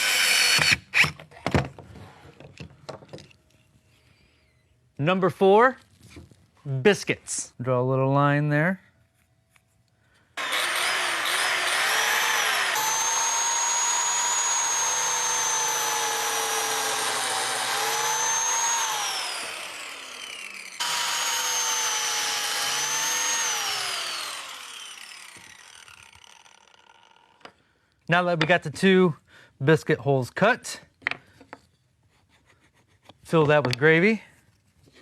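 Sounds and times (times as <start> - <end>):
biscuit joiner whining: 0.0 - 1.2, 10.4 - 27.6.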